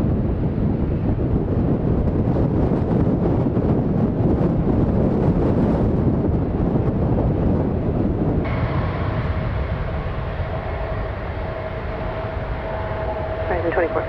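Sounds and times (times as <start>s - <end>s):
heavy rumble: 0.0s - 14.0s
wind on microphone: 0.0s - 14.0s
jet engines whining: 7.9s - 14.0s.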